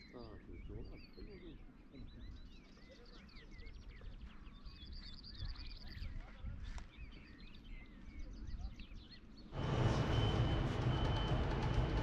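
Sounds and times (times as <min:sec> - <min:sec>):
small birds singing and chirping: 0:00.0 - 0:09.8
low rumble: 0:09.6 - 0:12.0.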